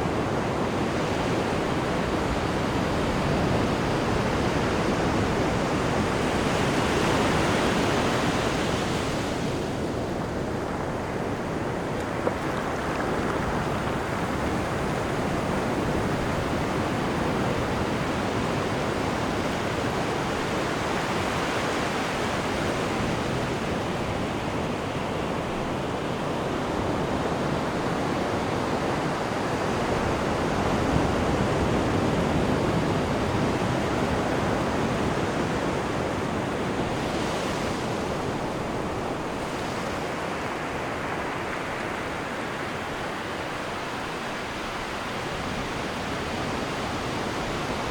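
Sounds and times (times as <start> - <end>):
churned sea water rushing: 0.0 - 47.9.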